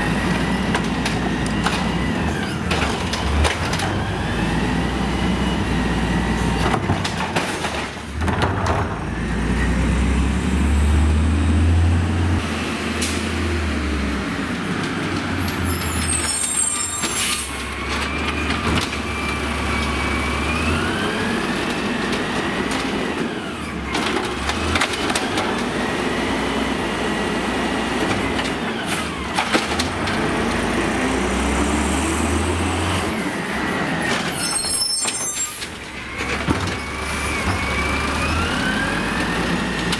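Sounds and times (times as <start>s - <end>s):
diesel engine revving: 0.0s - 6.9s, 8.1s - 16.8s, 17.4s - 34.4s, 36.0s - 39.9s
air brakes hissing: 15.5s - 17.7s.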